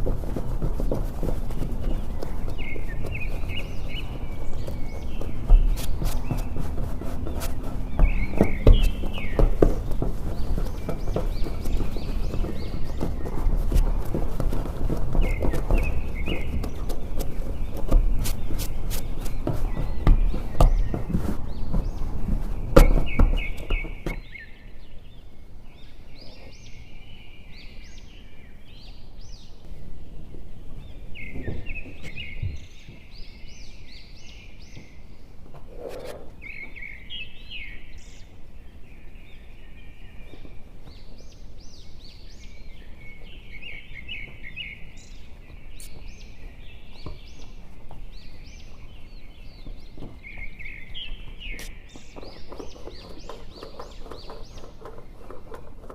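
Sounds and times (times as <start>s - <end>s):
knocks and handling noise: 0.0s - 24.4s.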